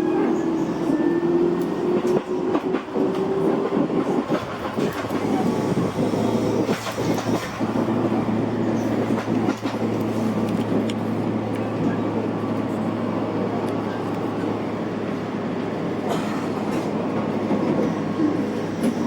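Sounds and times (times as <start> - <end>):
train carriage rumble: 0.0 - 19.0
wheels clacking over rail joints: 1.5 - 11.8.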